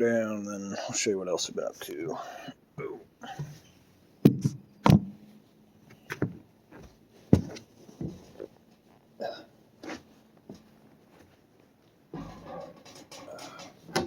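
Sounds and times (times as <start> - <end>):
sharp knocks and thumps: 4.2 - 5.2, 6.1 - 8.5, 12.1 - 14.0.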